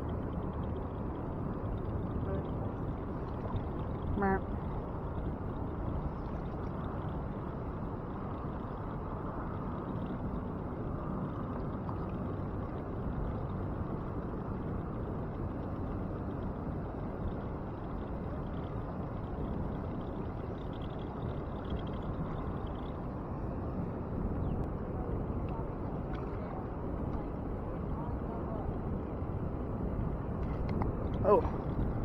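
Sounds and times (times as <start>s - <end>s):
water rushing below dam: 31.1s - 31.7s.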